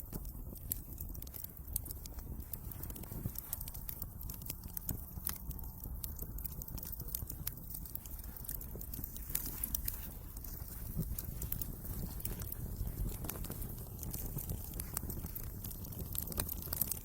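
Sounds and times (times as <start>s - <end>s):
low steady rumble: 0.0s - 17.0s
wood fire crackling: 0.0s - 17.0s.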